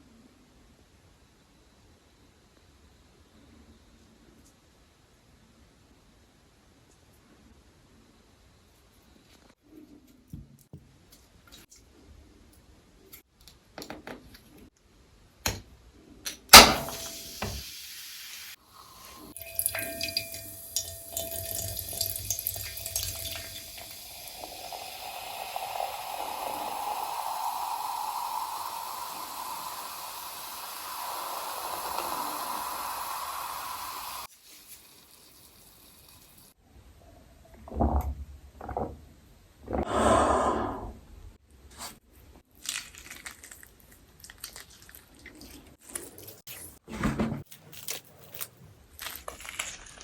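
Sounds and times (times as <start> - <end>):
water filling container: 18.7 - 36.6.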